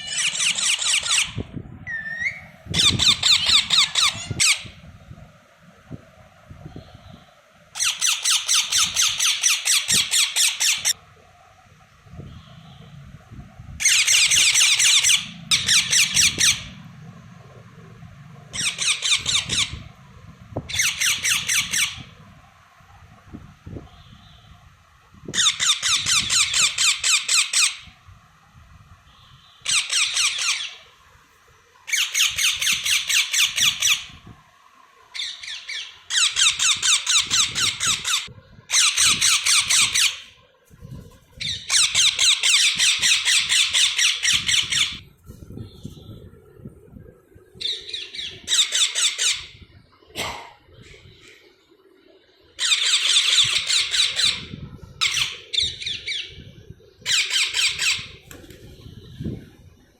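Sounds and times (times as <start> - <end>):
baby parrots chirping: 0.0 - 4.7, 7.8 - 11.0, 13.8 - 16.7, 18.5 - 19.8, 20.7 - 22.1, 25.4 - 27.8, 29.6 - 30.8, 35.2 - 40.2, 48.5 - 49.5.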